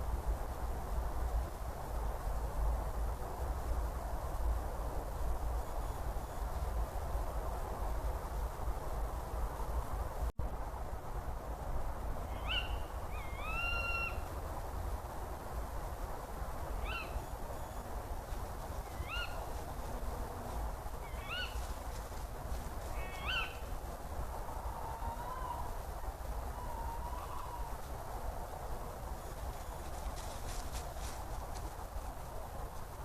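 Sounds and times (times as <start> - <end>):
steady hiss: 0.0 - 33.0
bird calling: 12.3 - 14.3, 16.8 - 17.9, 18.8 - 19.6, 21.0 - 21.7, 22.9 - 23.7, 26.5 - 27.8.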